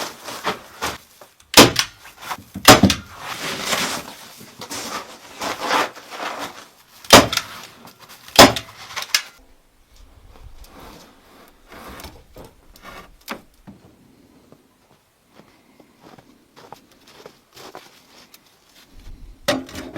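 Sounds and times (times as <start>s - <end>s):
scraping and rustling: 0.0s - 1.4s, 2.0s - 9.4s, 10.0s - 13.5s
sharp knocks: 2.6s - 3.0s.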